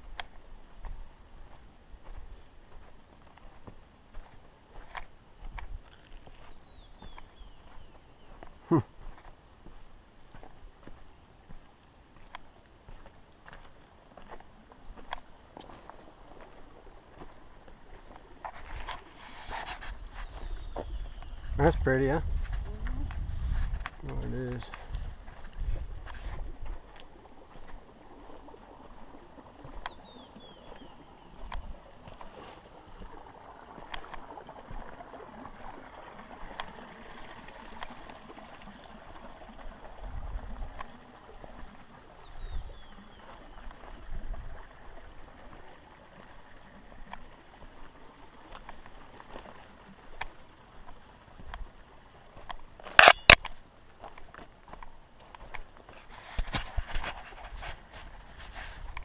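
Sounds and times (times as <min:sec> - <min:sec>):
creek water running: 0:00.0 - 0:59.0.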